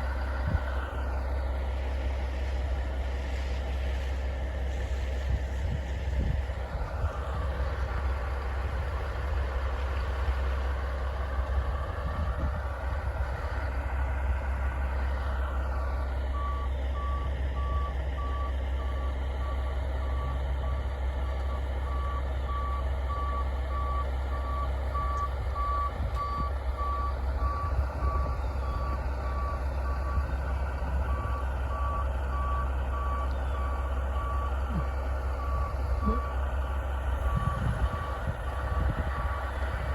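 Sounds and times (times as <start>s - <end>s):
truck engine rumble: 0.0s - 39.9s
reversing alarm beeping: 16.3s - 20.8s, 21.4s - 36.4s, 37.2s - 39.7s.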